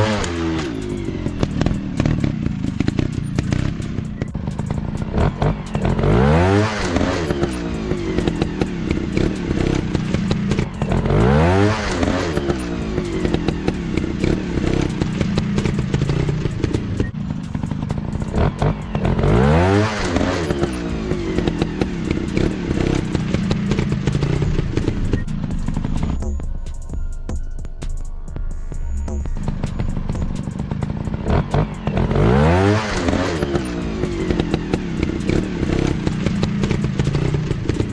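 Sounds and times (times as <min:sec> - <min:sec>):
trail bike engine revving: 0:00.0 - 0:26.4, 0:29.1 - 0:37.9
knocks and clatter: 0:29.0 - 0:37.9.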